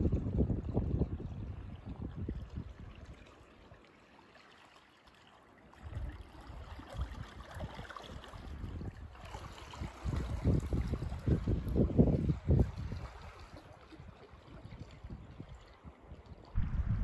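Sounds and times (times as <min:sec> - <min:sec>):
water lapping and gurgling: 0:00.0 - 0:17.0
low uneven rumbles: 0:16.6 - 0:17.0.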